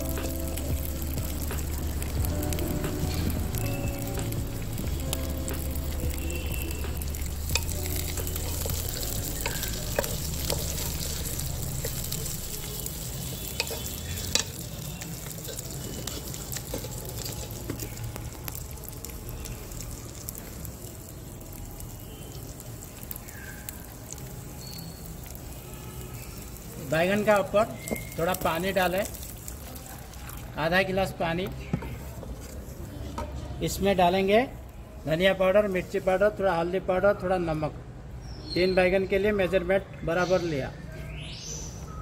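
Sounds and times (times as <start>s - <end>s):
oil pops and crackles: 0.0s - 30.6s
vegetables sizzling in hot oil: 0.0s - 36.2s.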